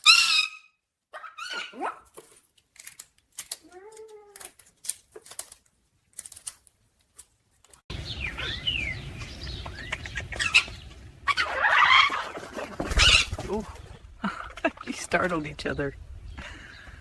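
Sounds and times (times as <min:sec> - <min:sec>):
parrot chirping and squawking: 0:00.0 - 0:02.0, 0:07.9 - 0:13.5
wing flapping: 0:07.9 - 0:15.4.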